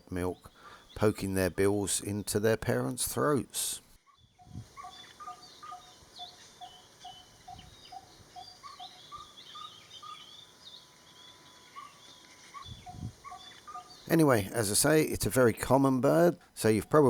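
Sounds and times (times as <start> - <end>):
birds chirping and twittering: 0.0 - 17.0
bird repeating low note: 4.1 - 14.6.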